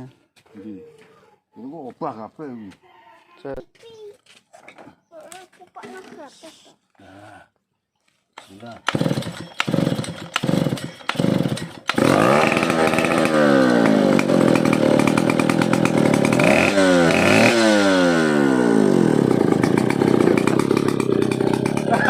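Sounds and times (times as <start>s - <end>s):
chainsaw engine revving and idling: 8.4s - 22.0s.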